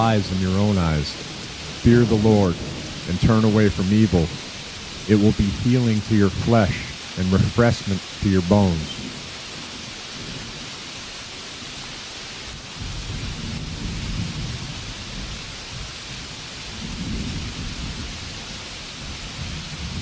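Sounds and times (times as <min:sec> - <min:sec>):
low rolling thunder: 0:00.0 - 0:11.8, 0:12.5 - 0:20.0
rainfall hiss: 0:00.0 - 0:20.0.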